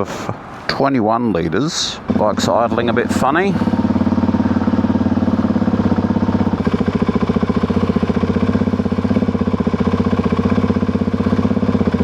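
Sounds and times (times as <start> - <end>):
person speaking: 0.0 - 3.9
motorcycle engine idling: 2.1 - 12.0.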